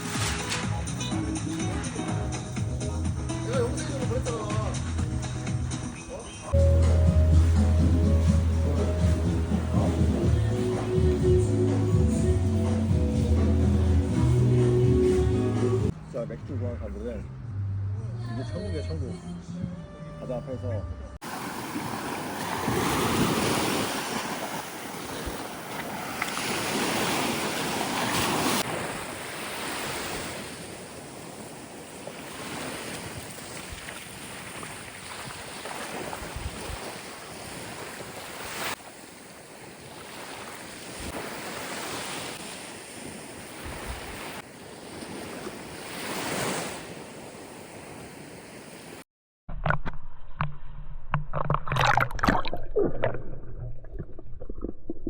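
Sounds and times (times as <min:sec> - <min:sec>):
sea waves breaking on beach: 0:21.2 - 0:49.0.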